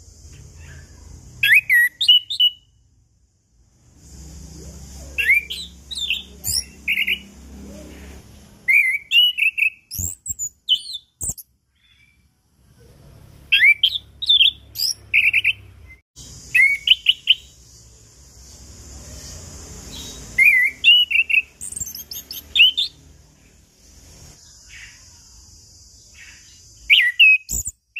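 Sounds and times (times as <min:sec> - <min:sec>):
thrush singing whistled notes: 0:00.6 - 0:02.8, 0:04.0 - 0:07.5, 0:08.6 - 0:12.2, 0:13.5 - 0:23.2, 0:26.1 - 0:27.9.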